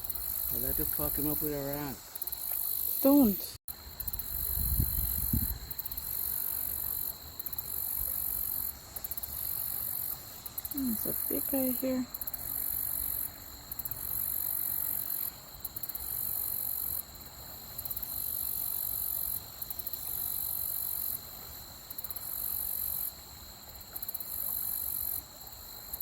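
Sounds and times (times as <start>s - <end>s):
high-pitched insect buzz: 0.0s - 13.3s.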